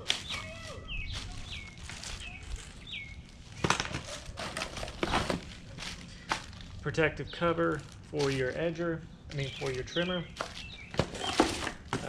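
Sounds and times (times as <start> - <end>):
knocks and rustles of packaging: 0.0 - 6.8, 9.4 - 12.0
songbird calling high notes: 0.2 - 3.2.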